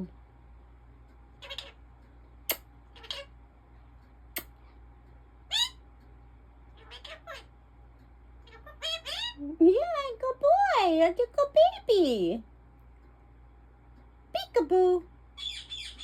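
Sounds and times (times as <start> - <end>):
parakeet chirping and squeaking: 1.3 - 3.4, 5.4 - 6.0, 6.6 - 7.6, 8.4 - 9.4, 15.3 - 16.0.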